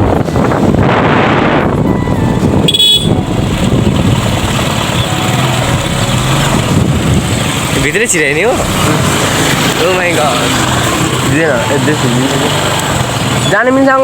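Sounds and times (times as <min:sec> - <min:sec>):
motor vehicles running: 0:00.0 - 0:14.0
short horn toot: 0:02.6 - 0:03.2.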